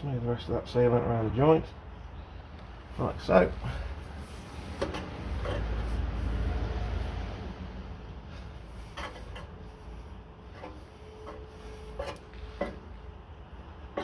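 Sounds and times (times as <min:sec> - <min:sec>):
exhaust box knocks and rubbing: 0:04.3 - 0:06.7, 0:08.3 - 0:13.2.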